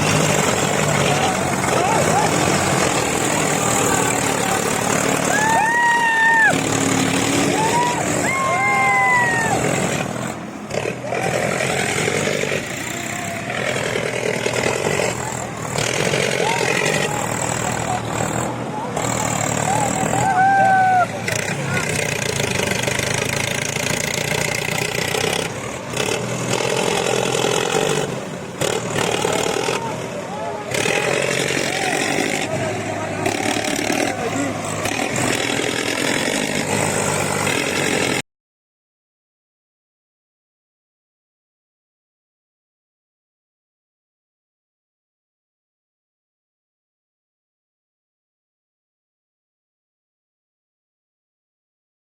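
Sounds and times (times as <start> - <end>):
tractor engine running: 0.0 - 5.7, 6.4 - 8.6, 9.2 - 38.2
voices calling out: 0.0 - 38.2.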